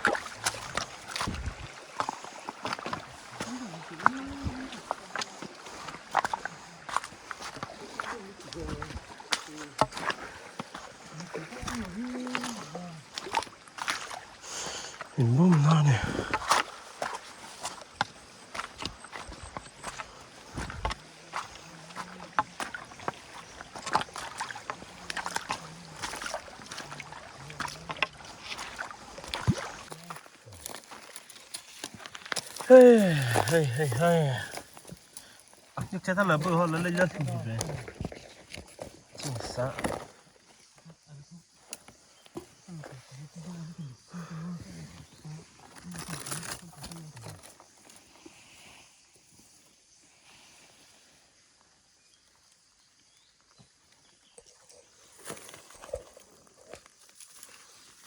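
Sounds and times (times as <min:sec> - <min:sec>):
sharp splashes and knocks: 0:00.0 - 0:40.2
water splashing in a stream: 0:00.0 - 0:50.0, 0:51.4 - 0:58.0.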